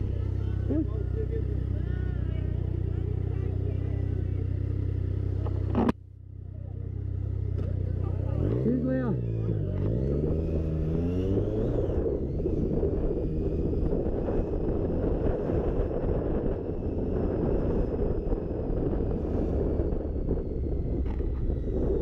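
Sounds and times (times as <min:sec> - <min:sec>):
motorcycle engine and road rumble: 0:00.0 - 0:22.0
wind rushing over microphone: 0:10.0 - 0:22.0.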